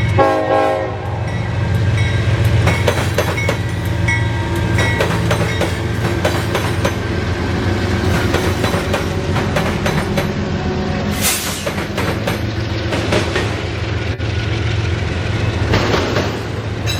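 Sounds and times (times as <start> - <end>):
train rumbling past: 0.0 - 16.9
wheels clicking over rail joints: 2.0 - 7.1, 8.0 - 10.4.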